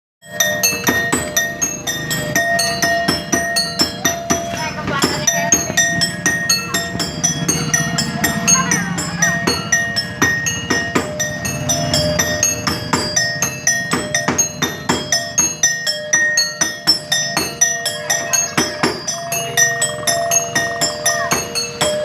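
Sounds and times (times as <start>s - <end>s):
metallic percussion music: 0.2s - 22.0s.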